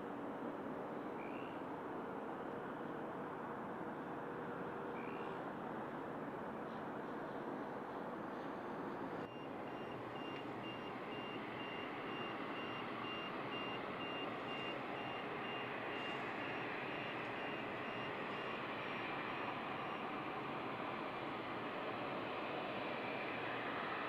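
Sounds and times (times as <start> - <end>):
jet engines roar: 0.0 - 24.0
reversing alarm beeping: 9.3 - 20.4.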